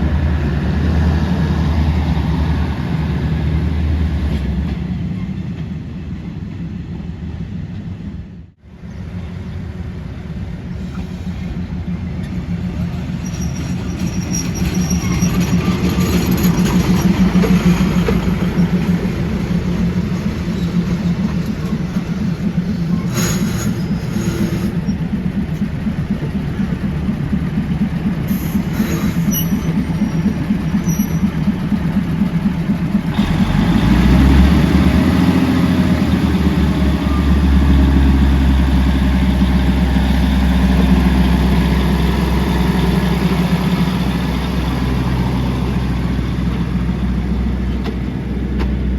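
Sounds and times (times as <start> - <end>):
train wheels rumbling on rails: 0.0 - 48.9
high wheel squeals: 12.2 - 27.2, 28.2 - 32.0.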